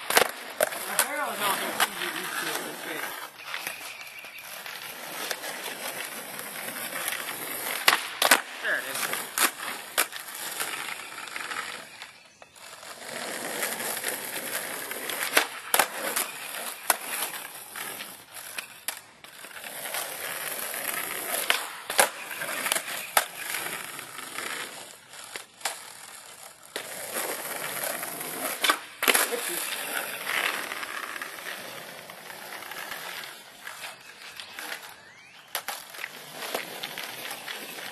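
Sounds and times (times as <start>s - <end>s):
skateboard clacks: 0.0s - 3.8s, 5.2s - 10.2s, 13.1s - 17.4s
skateboard wheels rolling on concrete: 0.0s - 37.9s.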